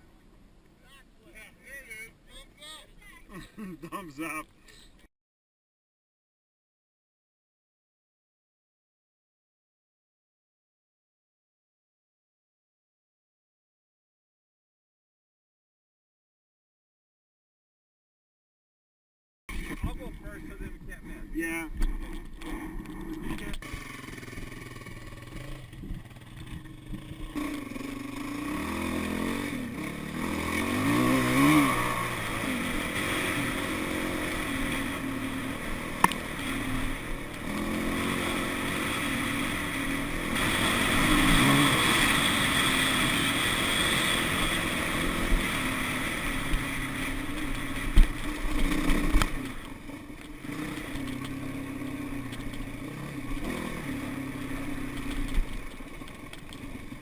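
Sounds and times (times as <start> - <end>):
dirt bike engine revving: 22.0 - 57.0.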